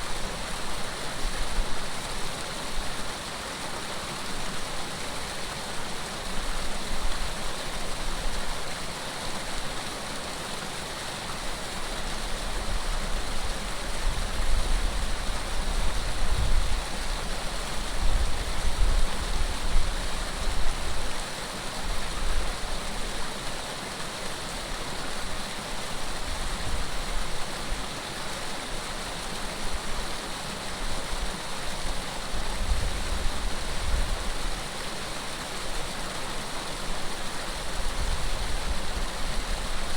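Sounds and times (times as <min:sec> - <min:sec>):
running water: 0:00.0 - 0:39.9
wind rumble on microphone: 0:13.4 - 0:21.0, 0:32.5 - 0:34.4.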